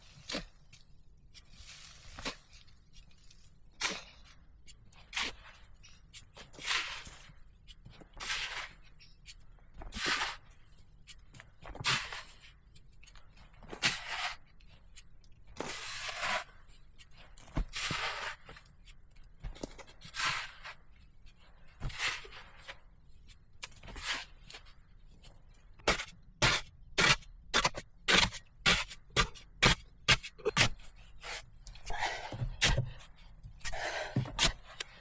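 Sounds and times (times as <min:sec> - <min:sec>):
rough scraping strokes: 0:25.9 - 0:35.0.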